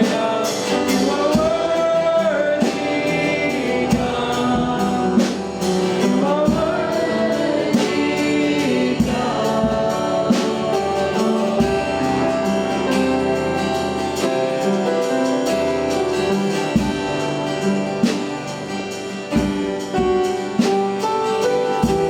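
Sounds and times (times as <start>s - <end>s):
group of voices singing: 0.0s - 20.1s
keyboard and drums: 0.0s - 22.0s.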